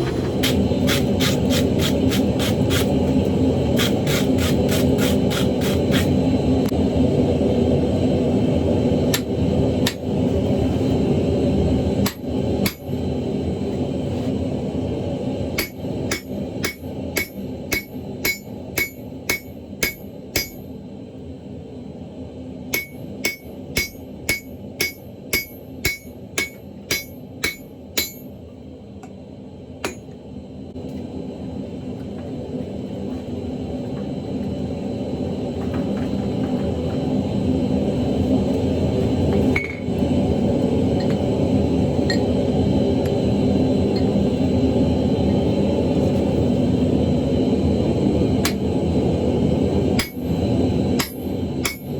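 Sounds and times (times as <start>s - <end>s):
hammer ringing on anvil: 15.6s - 20.7s, 22.7s - 28.4s, 50.0s - 50.3s, 51.0s - 51.9s.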